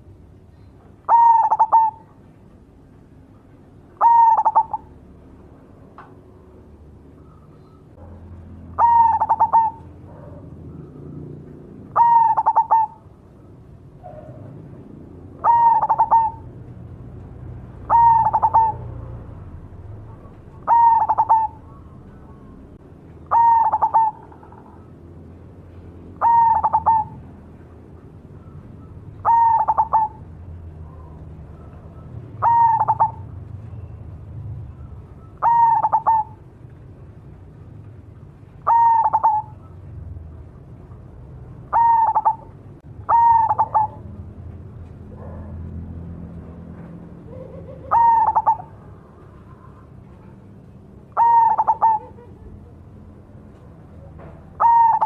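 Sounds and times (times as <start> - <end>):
dove cooing song: 0.0 - 2.3, 3.9 - 5.0, 7.1 - 17.0, 17.6 - 25.1, 25.7 - 33.9, 34.6 - 36.6, 38.6 - 40.0, 41.6 - 44.2, 47.2 - 55.0.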